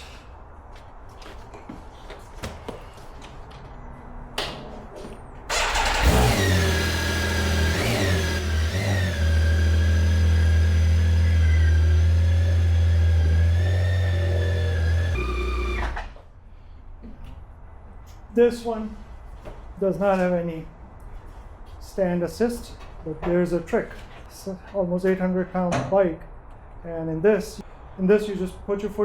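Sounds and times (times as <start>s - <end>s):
motorcycle engine starting and revving: 5.5s - 16.2s.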